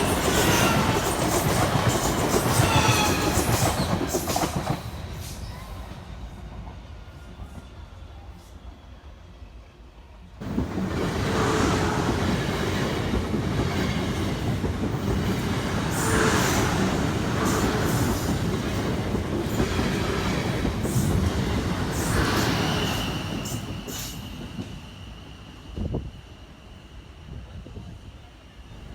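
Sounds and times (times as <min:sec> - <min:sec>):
train wheels clattering on rails: 0:00.0 - 0:05.9, 0:10.4 - 0:25.1.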